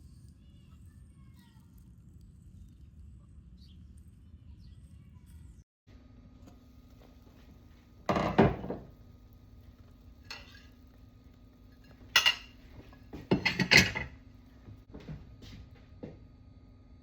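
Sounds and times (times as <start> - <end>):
dishes and utensils clattering: 8.1 - 8.9, 10.2 - 10.9, 11.7 - 14.2.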